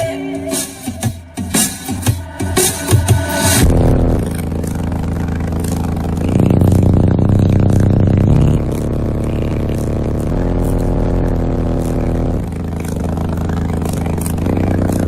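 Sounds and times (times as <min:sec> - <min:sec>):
deep bass notes from subwoofers: 0:03.6 - 0:15.0.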